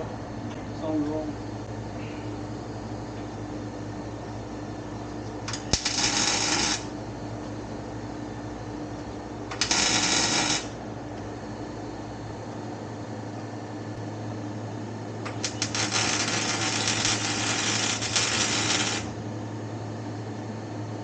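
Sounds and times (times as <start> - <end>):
steady hum: 0.0 - 21.0
welder crackling hiss: 5.5 - 6.9, 9.5 - 10.8, 15.3 - 19.2.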